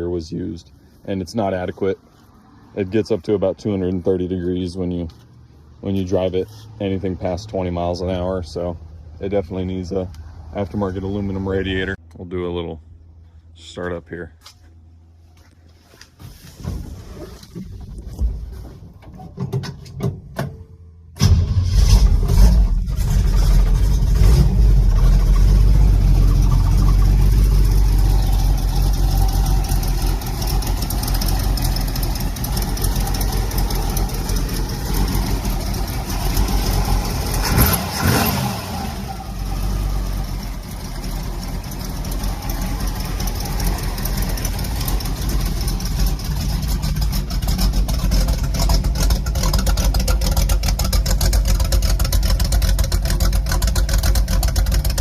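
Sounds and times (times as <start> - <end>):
car engine running: 21.2 - 55.0.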